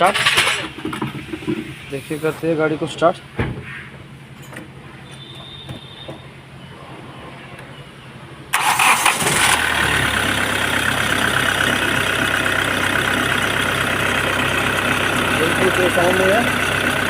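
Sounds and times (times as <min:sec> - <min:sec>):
car engine idling: 0:08.5 - 0:17.0
starter motor cranking: 0:08.6 - 0:10.6.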